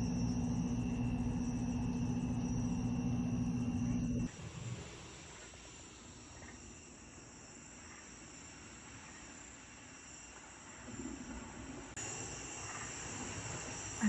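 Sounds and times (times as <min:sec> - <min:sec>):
low background rumble: 0:00.0 - 0:04.3
night insects chirring: 0:00.0 - 0:14.0.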